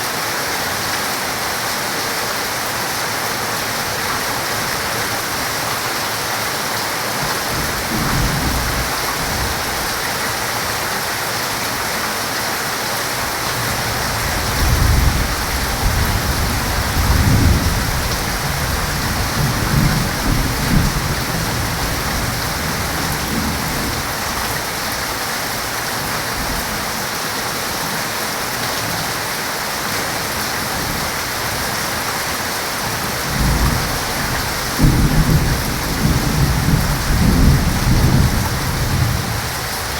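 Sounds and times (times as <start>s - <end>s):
heavy rain falling: 0.0s - 39.9s
thunder rumbling: 13.7s - 24.5s, 32.8s - 39.9s.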